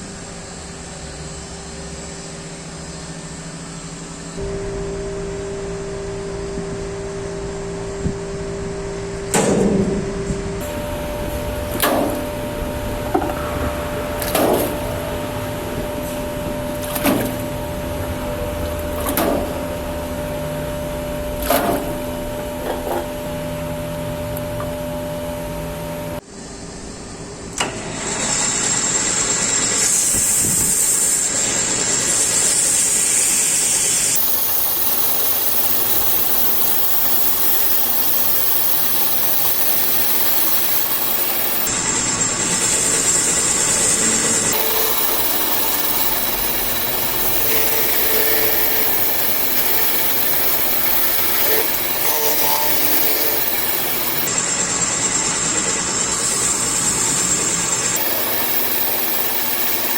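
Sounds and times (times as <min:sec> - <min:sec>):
machine hum: 0:00.0 - 0:59.9
loud steady hiss: 0:26.2 - 0:59.9.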